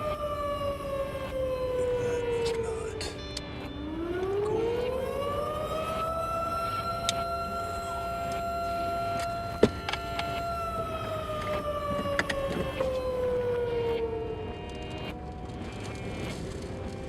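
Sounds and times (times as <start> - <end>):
tornado warning siren: 0.0 - 17.0.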